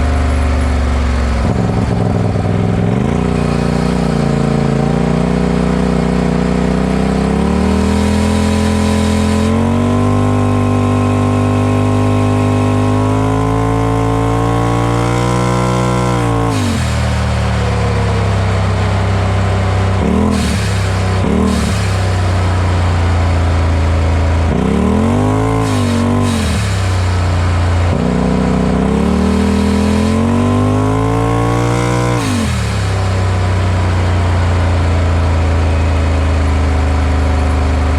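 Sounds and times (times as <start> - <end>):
engine revving: 0.0 - 37.9
blow-off valve hiss: 7.4 - 9.6, 16.4 - 19.0, 19.7 - 24.2, 25.2 - 33.4.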